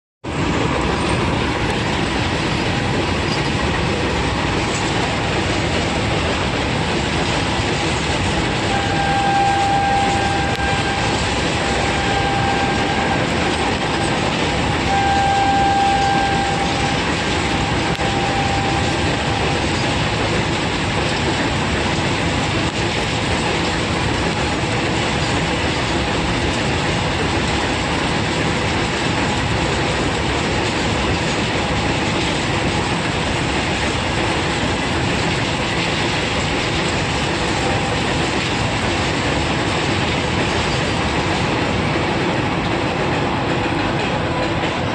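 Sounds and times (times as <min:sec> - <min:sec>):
train wheels on rails: 0:00.2 - 0:44.9
steady high tone: 0:08.6 - 0:20.0.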